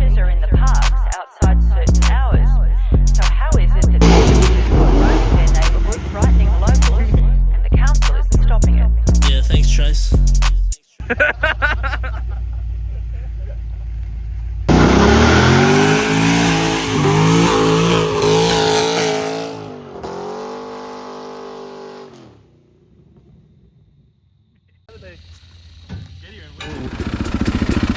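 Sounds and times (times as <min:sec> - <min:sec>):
dirt bike engine revving: 0:04.0 - 0:07.2, 0:14.6 - 0:23.0, 0:25.6 - 0:27.9
low rumble: 0:04.0 - 0:07.2.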